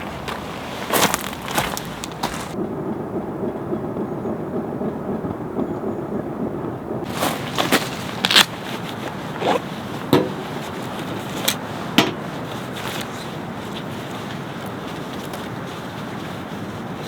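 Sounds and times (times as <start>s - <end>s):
steady hiss: 0.0s - 2.6s, 6.5s - 17.0s.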